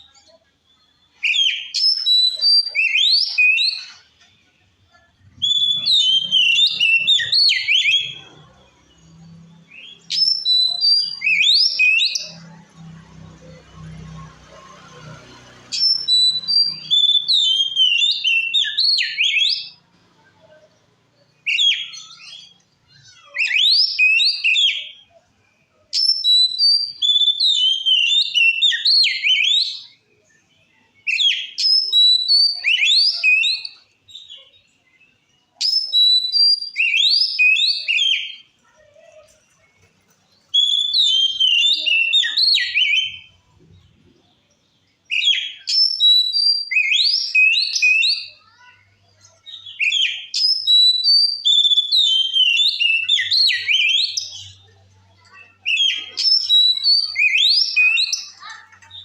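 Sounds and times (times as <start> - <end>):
bird singing whistled phrases: 0.1 - 4.1, 5.4 - 8.4, 9.0 - 12.4, 15.8 - 19.8, 21.4 - 25.1, 26.0 - 30.0, 31.0 - 34.7, 35.6 - 38.4, 40.6 - 43.4, 45.1 - 48.8, 49.5 - 58.5.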